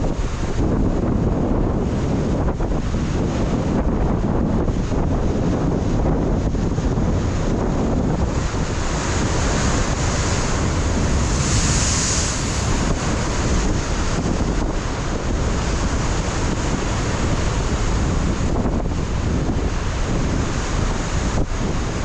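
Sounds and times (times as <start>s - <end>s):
wind buffeting microphone: 0.0s - 22.0s
surf breaking on rocks: 7.8s - 15.8s.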